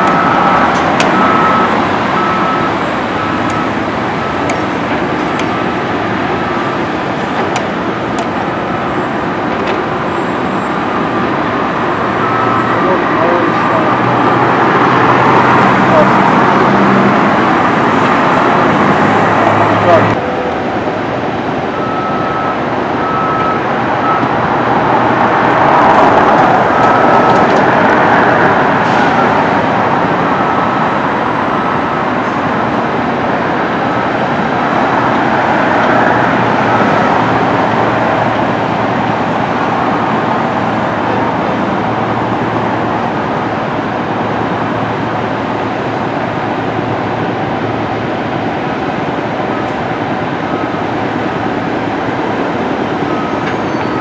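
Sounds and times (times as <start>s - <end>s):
vehicle in motion: 0.0s - 54.0s.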